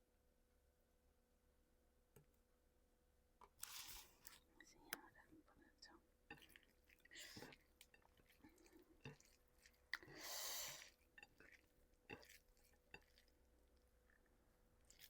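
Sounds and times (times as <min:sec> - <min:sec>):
person chewing food: 0:06.2 - 0:15.0.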